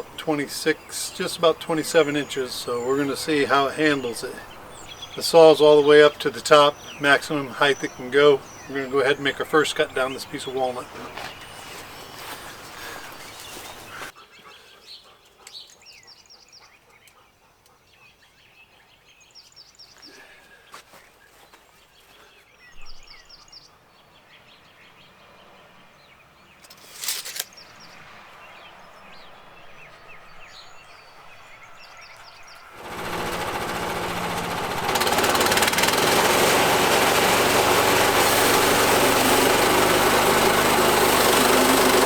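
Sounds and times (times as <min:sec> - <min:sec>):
birds chirping and trilling: 0:00.0 - 0:26.8, 0:27.4 - 0:42.0
loud burst of noise: 0:32.8 - 0:42.0.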